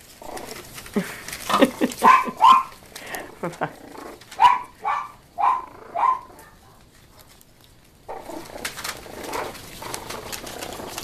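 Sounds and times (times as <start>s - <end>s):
rustling: 0.0s - 11.0s
dog barking: 2.0s - 2.8s, 4.4s - 7.3s.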